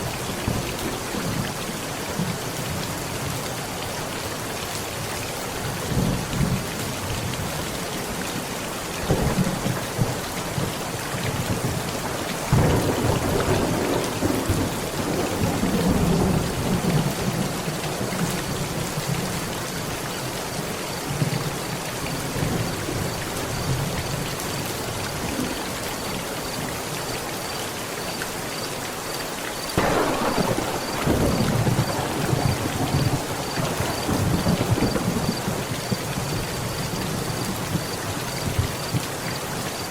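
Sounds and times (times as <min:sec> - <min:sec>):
heavy rain falling: 0:00.0 - 0:39.9
thunder rumbling: 0:09.1 - 0:17.5, 0:29.8 - 0:39.0.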